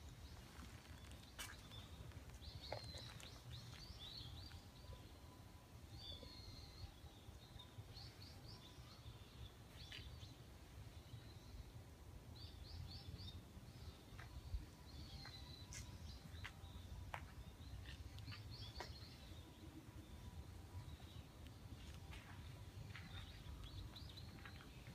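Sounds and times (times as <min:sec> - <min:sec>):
small birds chirping: 0:00.0 - 0:05.1, 0:12.4 - 0:24.9.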